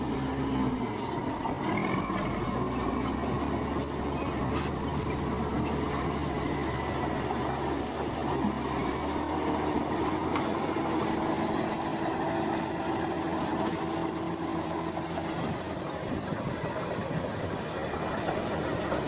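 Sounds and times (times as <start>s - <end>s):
heavy machinery engine running: 0.0s - 19.0s
short high squeaks: 3.4s - 5.3s, 10.0s - 15.1s.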